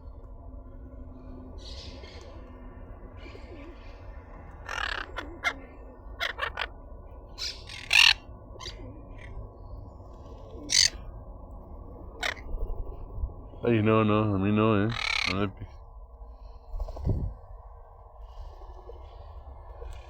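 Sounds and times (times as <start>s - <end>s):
parrots squawking: 4.6s - 6.8s, 7.4s - 9.4s, 10.6s - 11.0s, 12.2s - 12.5s, 14.8s - 15.6s.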